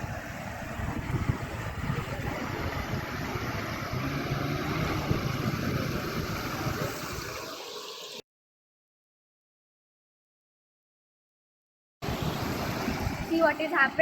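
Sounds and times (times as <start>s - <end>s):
dense rush of noise: 0.0s - 8.2s
car engine running: 0.4s - 7.4s.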